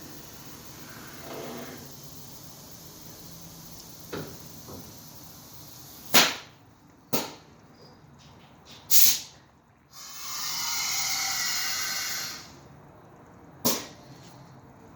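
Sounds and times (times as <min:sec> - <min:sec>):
air hissing: 0:00.0 - 0:06.5, 0:08.9 - 0:12.6
air valve blasts: 0:00.0 - 0:06.6, 0:08.9 - 0:12.6.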